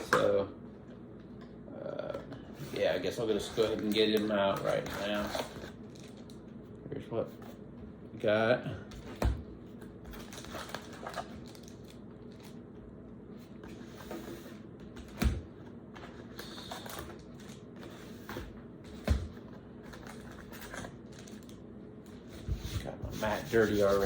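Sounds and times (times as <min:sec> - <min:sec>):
foil packs rustling and crinkling: 0:02.8 - 0:06.3, 0:10.1 - 0:12.6, 0:20.0 - 0:21.6.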